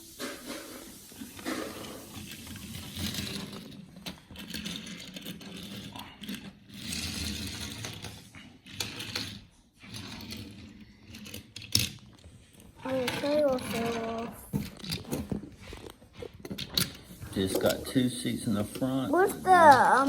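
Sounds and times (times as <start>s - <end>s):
toy cars clicking and rattling: 0.2s - 20.0s.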